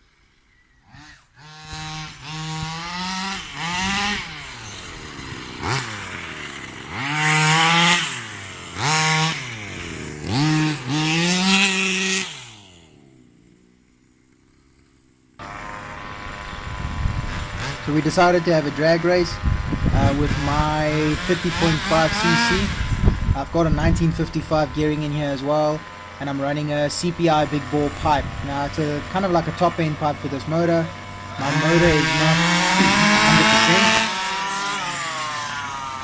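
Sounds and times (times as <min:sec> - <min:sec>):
rc car engine revving: 0:00.0 - 0:36.0.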